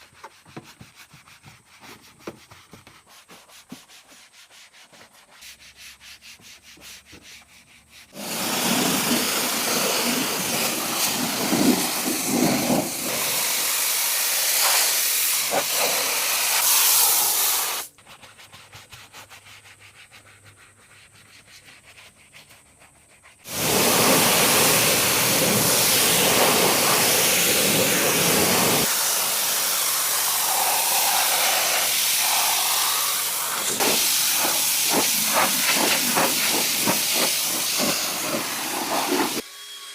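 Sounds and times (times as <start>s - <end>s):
high-pressure jet hissing: 8.1s - 17.9s, 23.5s - 39.9s.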